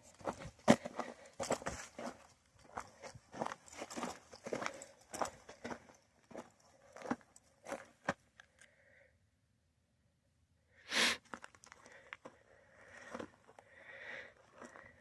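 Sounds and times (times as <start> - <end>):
footsteps crunching on gravel: 0.0 - 8.2.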